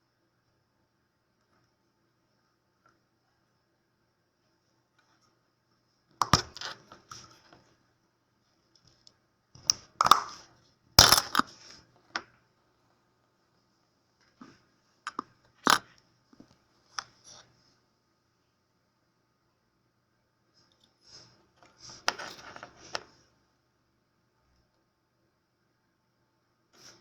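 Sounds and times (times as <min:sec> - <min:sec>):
plastic and metal parts cracking: 0:06.2 - 0:06.8, 0:10.0 - 0:10.4, 0:11.0 - 0:11.5, 0:15.1 - 0:15.8.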